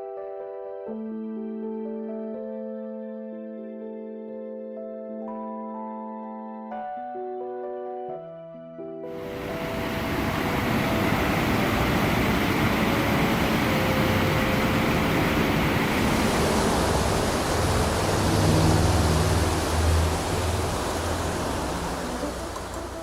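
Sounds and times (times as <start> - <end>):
wind rushing over microphone: 9.2 - 23.0.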